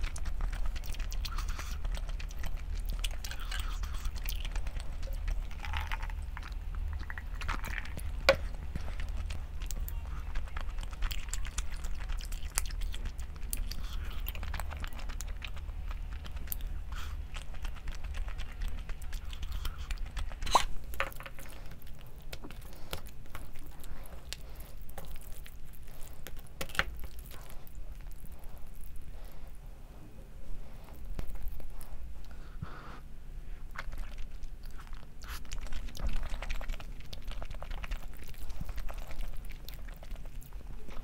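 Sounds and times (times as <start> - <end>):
chewing and crunching food: 0.0 - 29.6, 30.5 - 32.8, 33.5 - 41.0
low hum: 0.0 - 41.0.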